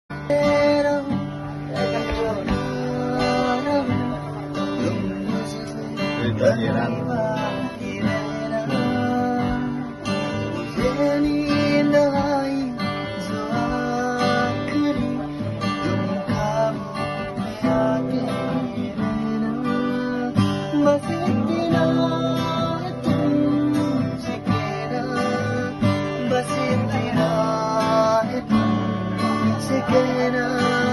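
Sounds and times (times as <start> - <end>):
person singing: 0.1 - 30.9
strummed acoustic guitar: 0.1 - 30.9.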